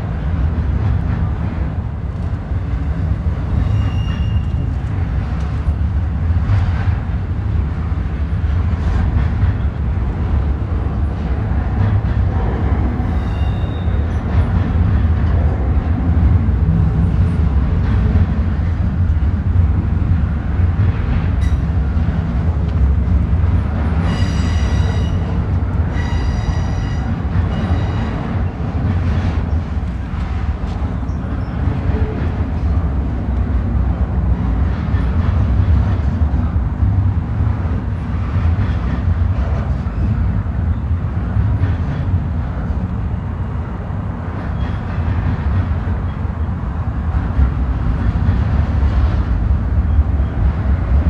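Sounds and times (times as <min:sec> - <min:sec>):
train wheels rumbling on rail: 0:00.0 - 0:51.0
high wheel squeals: 0:03.6 - 0:04.7, 0:13.1 - 0:14.2.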